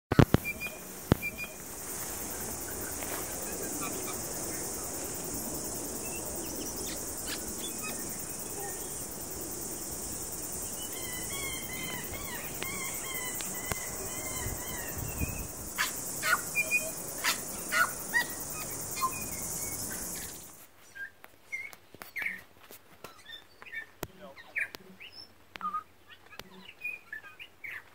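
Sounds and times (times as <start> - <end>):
high-pitched hiss: 0.1 - 20.6
wild birds chirping: 0.3 - 22.4, 23.1 - 27.9.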